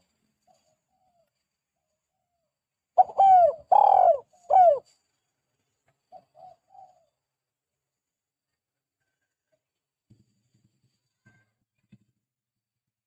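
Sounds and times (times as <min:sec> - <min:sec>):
dove cooing: 0:03.0 - 0:04.8, 0:06.1 - 0:07.1.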